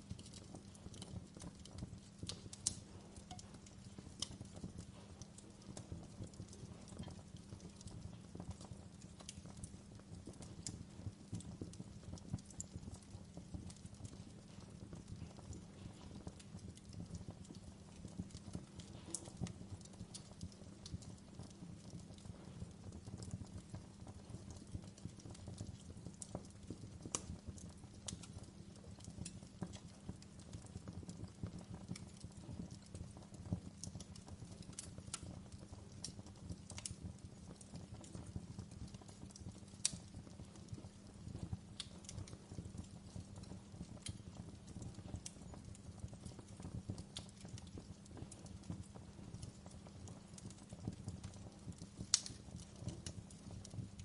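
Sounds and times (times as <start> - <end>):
wood fire crackling and popping: 0.0 - 54.0.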